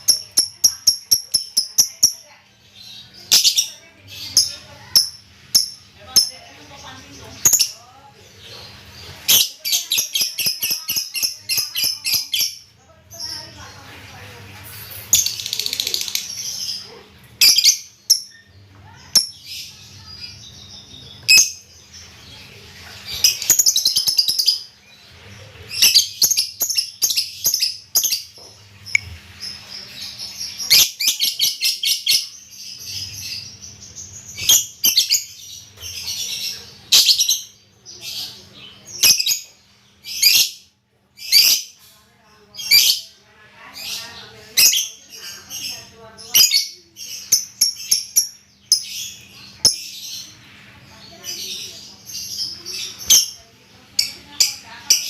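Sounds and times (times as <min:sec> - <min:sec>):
songbird chirping and trilling: 0:00.0 - 0:55.0.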